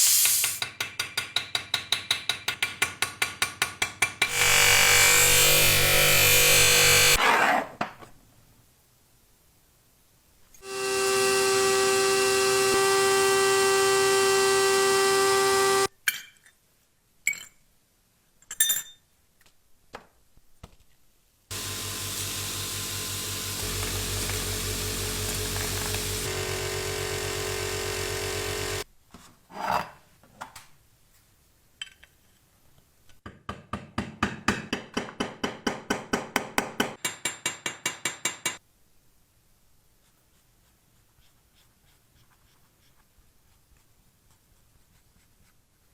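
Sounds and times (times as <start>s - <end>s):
high-speed power tool running: 4.3s - 7.2s, 10.6s - 15.9s, 21.5s - 28.8s.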